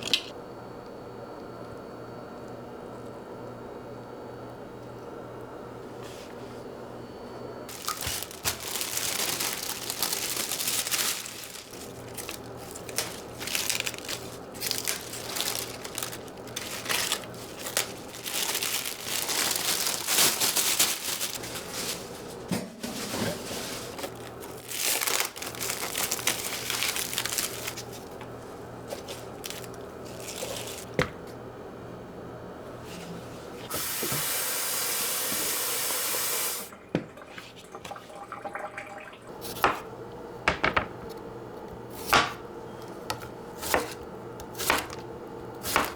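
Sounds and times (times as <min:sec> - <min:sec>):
packaging crinkling: 0:07.7 - 0:31.0.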